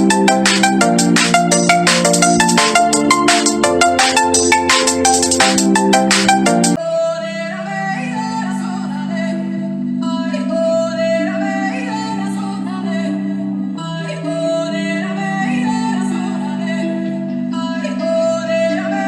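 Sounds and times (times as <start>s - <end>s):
held synth chords: 0.0s - 6.8s
thumping electronic beat: 0.0s - 6.8s.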